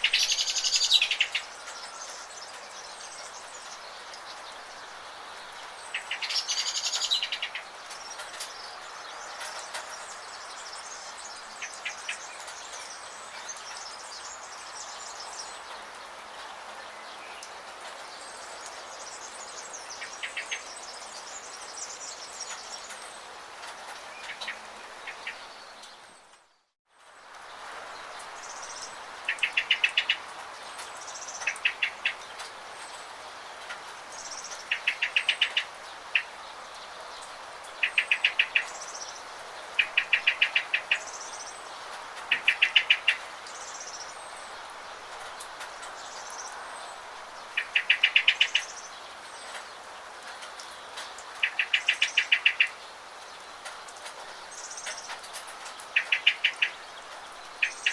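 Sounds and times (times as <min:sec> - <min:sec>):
songbird trilling: 0:00.0 - 0:02.0, 0:47.6 - 0:48.8, 0:51.4 - 0:52.8, 0:56.0 - 0:56.8, 0:57.6 - 0:57.9
rain hissing: 0:00.0 - 0:57.9.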